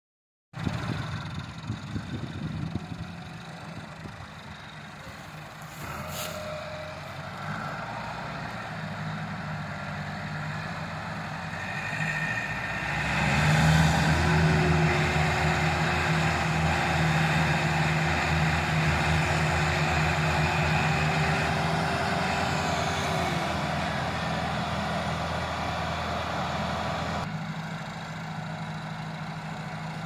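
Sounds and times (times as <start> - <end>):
engine knocking: 0.6 - 5.4
tractor engine running: 0.6 - 30.0.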